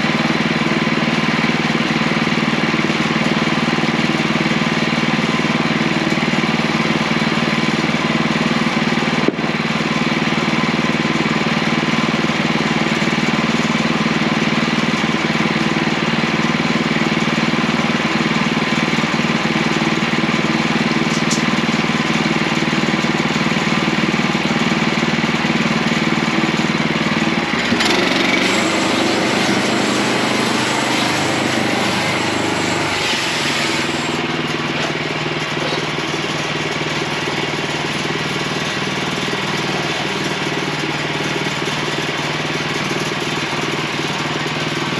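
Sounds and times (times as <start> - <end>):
gas engine running: 0.0 - 44.9.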